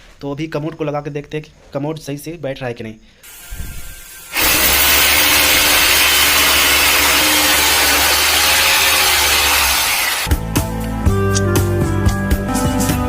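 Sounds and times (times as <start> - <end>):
electric power tool motor running: 3.3 - 10.3.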